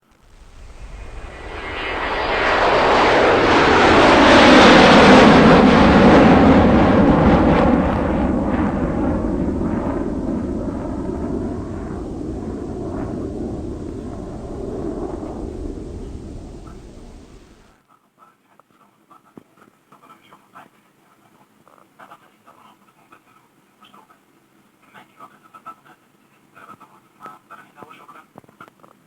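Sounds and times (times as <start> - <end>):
jet airliner engine roar: 0.1 - 17.7.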